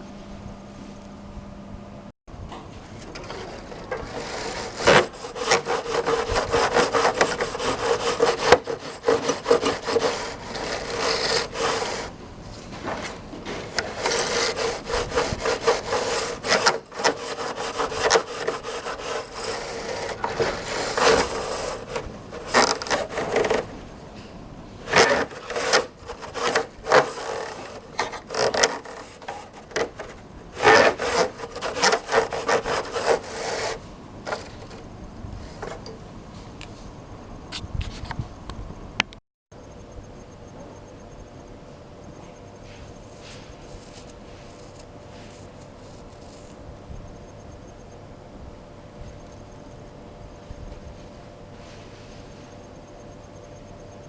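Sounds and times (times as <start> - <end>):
brush bristles scrubbing: 3.0 - 12.2, 13.6 - 23.9, 24.9 - 34.8.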